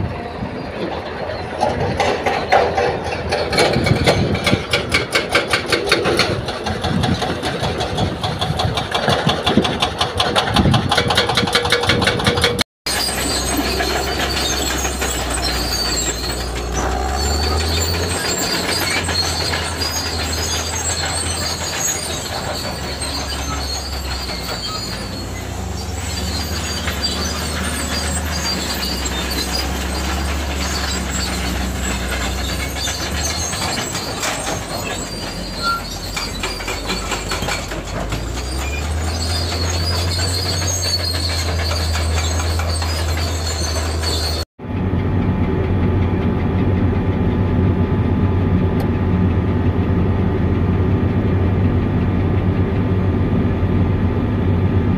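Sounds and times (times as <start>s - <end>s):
diesel engine drone: 0.0s - 54.9s
metallic squealing of crawler tracks: 0.1s - 44.5s.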